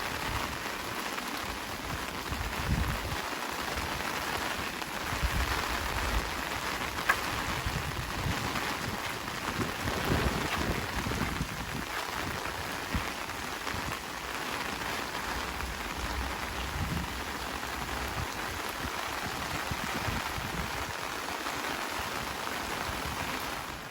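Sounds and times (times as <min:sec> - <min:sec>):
heavy rain hissing: 0:00.0 - 0:23.9.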